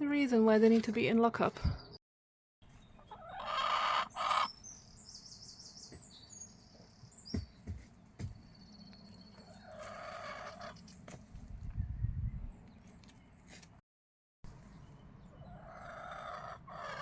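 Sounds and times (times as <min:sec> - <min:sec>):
songbird chirping: 0:02.6 - 0:11.1, 0:14.5 - 0:17.0
chicken calling: 0:03.0 - 0:04.6, 0:09.4 - 0:10.8, 0:15.4 - 0:17.0.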